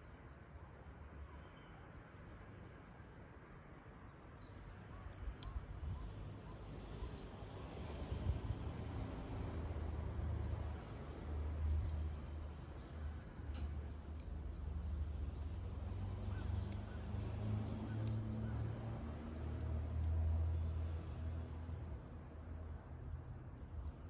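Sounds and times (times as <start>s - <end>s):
wind rumble on microphone: 5.3s - 14.5s
fire crackling: 6.6s - 24.0s.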